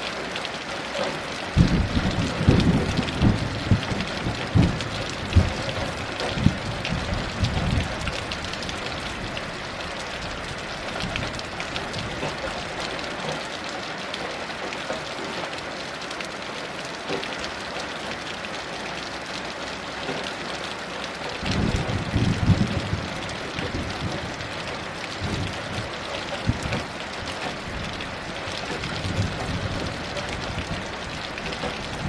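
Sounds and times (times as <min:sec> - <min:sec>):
heavy rain falling: 0:00.0 - 0:32.0
low thunder rumbles: 0:01.5 - 0:09.6, 0:21.4 - 0:32.0.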